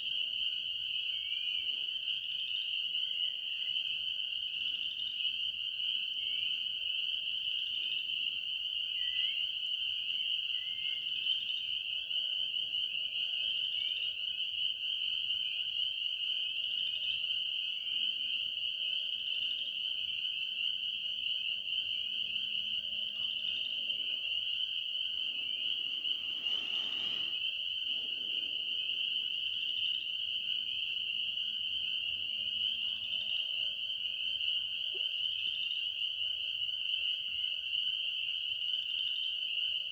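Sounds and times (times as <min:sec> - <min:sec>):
frogs calling: 0:20.4 - 0:37.7.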